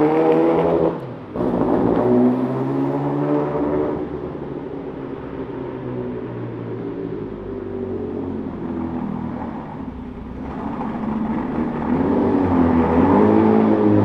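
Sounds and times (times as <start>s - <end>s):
car engine running: 8.5s - 14.0s.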